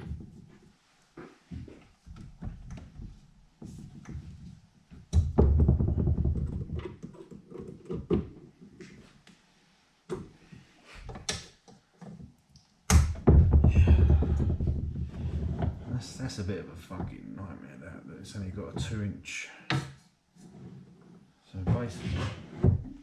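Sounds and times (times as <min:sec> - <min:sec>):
knocks and clunks: 0:01.2 - 0:09.0, 0:12.0 - 0:16.2.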